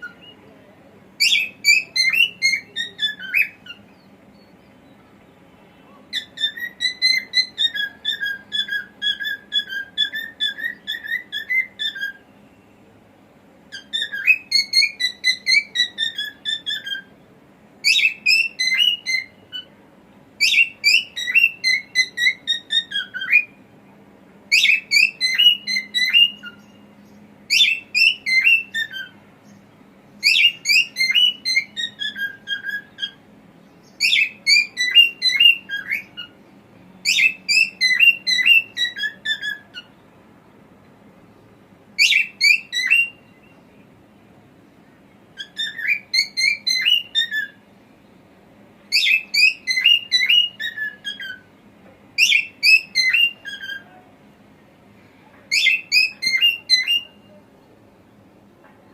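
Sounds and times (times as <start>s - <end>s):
cockatiel whistling: 1.2s - 3.8s, 6.1s - 12.2s, 13.7s - 17.1s, 17.8s - 19.7s, 20.4s - 23.6s, 24.5s - 26.7s, 27.5s - 29.2s, 30.2s - 33.2s, 34.0s - 36.4s, 37.0s - 39.9s, 42.0s - 43.3s, 45.4s - 47.6s, 48.9s - 51.5s, 52.2s - 53.9s, 55.5s - 57.2s.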